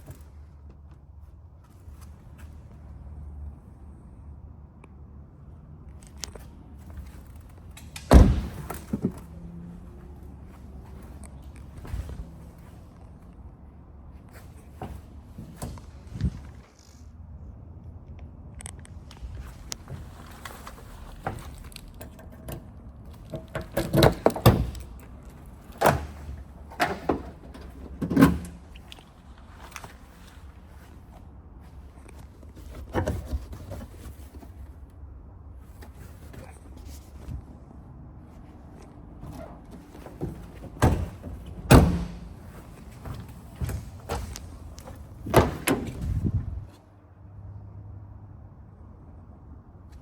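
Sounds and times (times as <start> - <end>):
knocks and clunks: 7.0 - 9.6, 19.6 - 29.0, 39.2 - 46.6
car door slamming: 8.0 - 9.2, 40.2 - 42.5.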